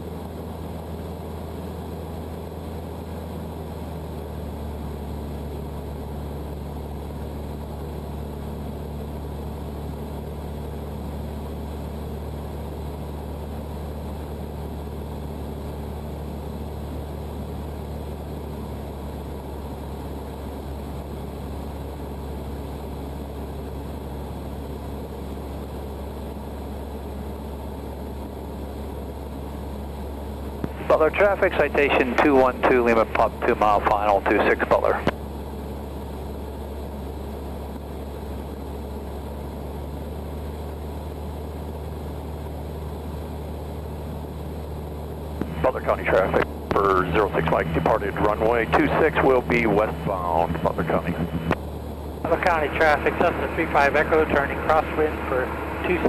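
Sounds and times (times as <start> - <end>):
light aircraft engine droning: 0.0 - 56.0.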